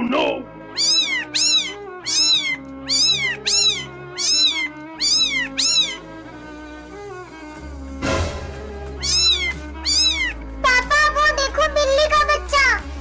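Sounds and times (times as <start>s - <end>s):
background music: 0.0s - 13.0s
kitten meowing: 0.7s - 6.1s, 9.0s - 10.4s.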